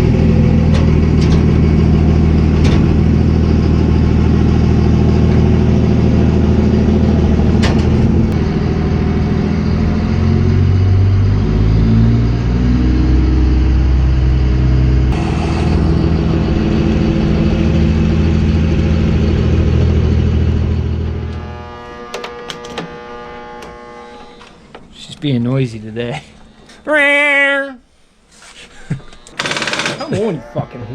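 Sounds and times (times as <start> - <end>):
engine revving: 0.0 - 24.3.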